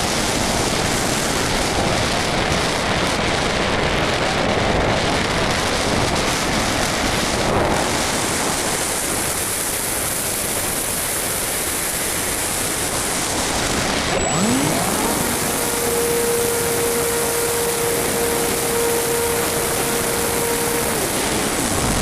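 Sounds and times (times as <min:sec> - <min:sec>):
wind hissing over camera: 0:00.0 - 0:22.0
model plane motor whine: 0:13.9 - 0:22.0.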